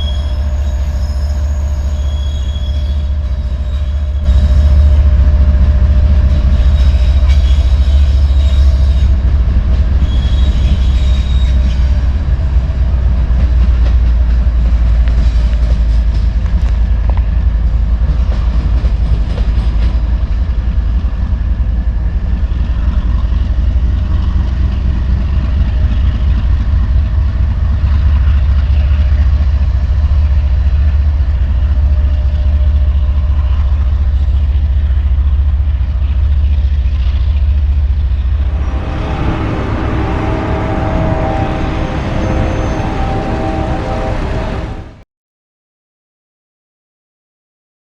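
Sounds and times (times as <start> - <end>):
wheel squeals: 0.0 - 4.3, 10.0 - 12.0
train cars rumbling past: 0.0 - 45.0.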